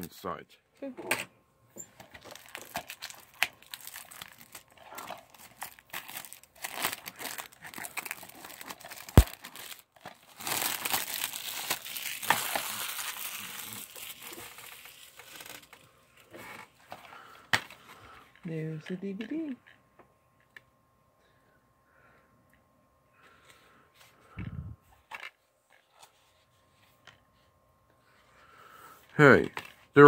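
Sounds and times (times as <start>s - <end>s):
plastic wrap crinkling and tearing: 2.1s - 15.9s.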